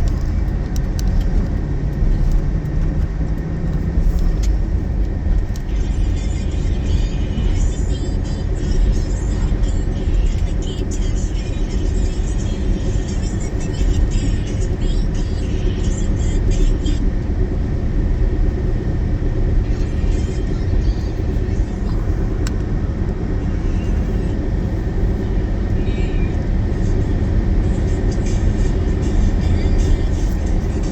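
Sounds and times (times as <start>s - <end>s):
car driving rumble from inside: 0.0s - 30.9s.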